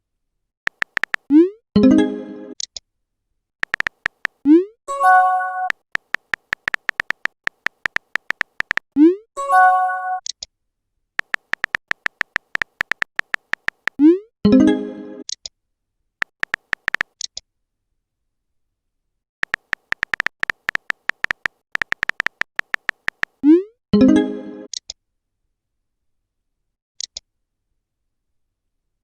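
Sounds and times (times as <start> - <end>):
rapid typing clicks: 0.7 - 1.3, 3.6 - 4.4, 5.7 - 8.9, 11.2 - 14.0, 16.2 - 17.2, 19.4 - 23.4.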